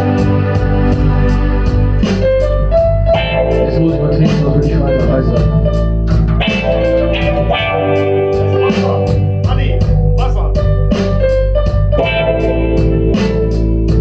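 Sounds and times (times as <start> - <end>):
electric guitar lines: 0.0 - 10.2
bass: 0.0 - 14.0
drums keeping a steady beat: 0.0 - 14.0.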